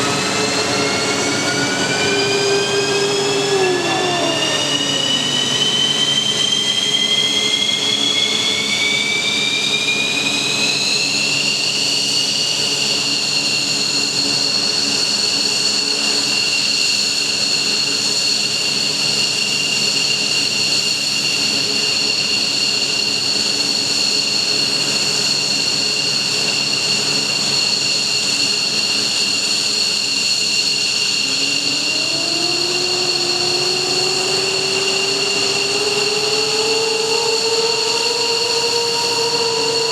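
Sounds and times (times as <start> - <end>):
jet engines starting up: 0.0 - 39.9.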